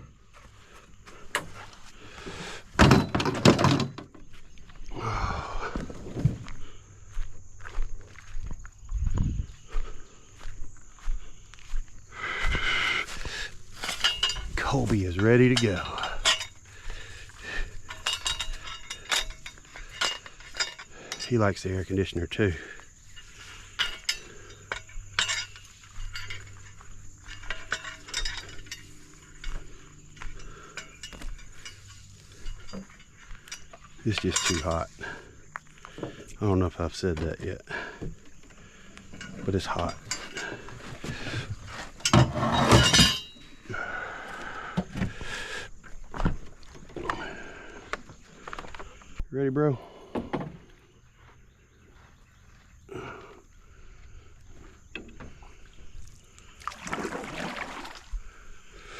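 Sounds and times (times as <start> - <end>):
knocks and rattles: 2.7 - 4.4, 13.7 - 16.6, 17.6 - 21.6, 23.2 - 35.0, 39.1 - 43.4
knocks and thuds: 2.8 - 4.2
steady low hum: 4.3 - 42.2
light clicks and metallic clinks: 13.2 - 43.8.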